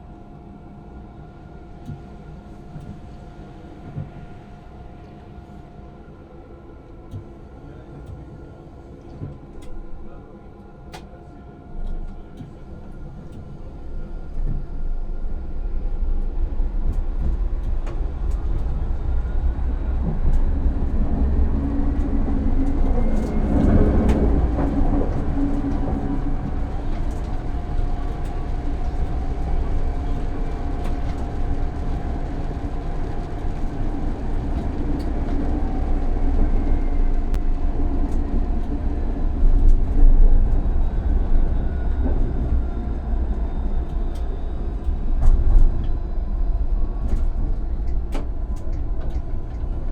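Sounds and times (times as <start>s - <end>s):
constant hum: 0.0s - 49.9s
wheels rumbling on rails: 11.8s - 49.9s
tram motor whine rising: 12.8s - 49.9s.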